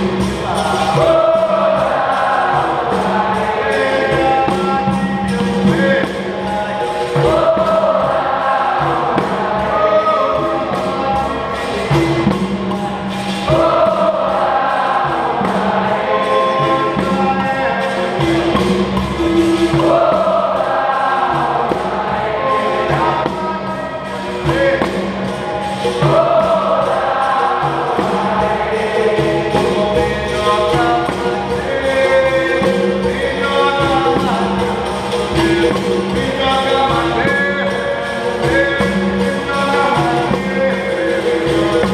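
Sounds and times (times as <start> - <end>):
group singing chorus response: 0.0 - 12.2, 12.9 - 41.9
hand percussion strokes: 0.0 - 41.9.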